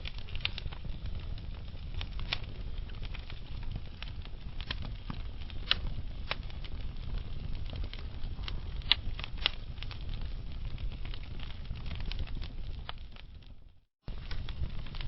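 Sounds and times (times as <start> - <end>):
low fire rumble: 0.0 - 15.0
wood fire crackling and popping: 0.0 - 15.0.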